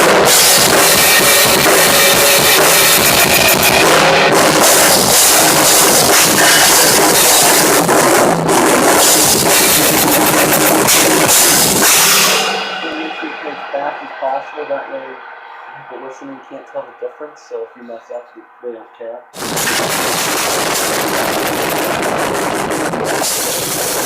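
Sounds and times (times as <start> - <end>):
rock drum kit playing: 0.0 - 13.5, 19.4 - 24.0.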